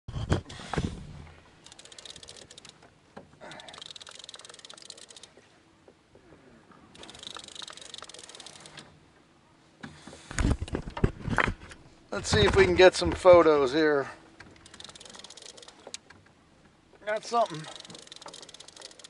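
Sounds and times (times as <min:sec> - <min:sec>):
fishing reel clicking: 0:01.6 - 0:02.8, 0:03.4 - 0:05.4, 0:07.0 - 0:08.9, 0:14.6 - 0:16.1, 0:17.3 - 0:19.0
knocks of handling gear: 0:12.2 - 0:13.6.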